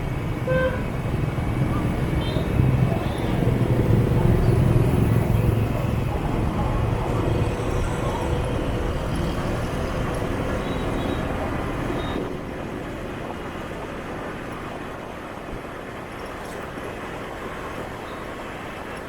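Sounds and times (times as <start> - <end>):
motorbike engines rumbling: 0.0 - 13.8
road noise: 0.0 - 19.0.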